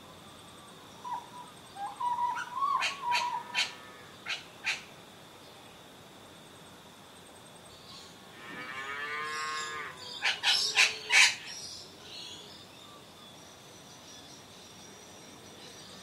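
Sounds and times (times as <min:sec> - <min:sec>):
bird long call: 0:01.0 - 0:04.9.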